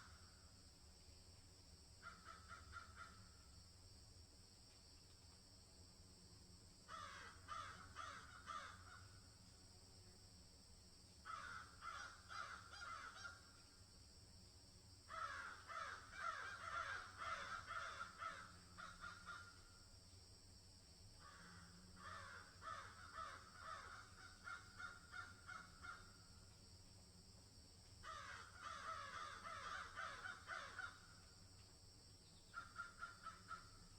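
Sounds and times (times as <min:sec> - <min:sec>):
faint steady hiss: 0:00.0 - 0:33.9.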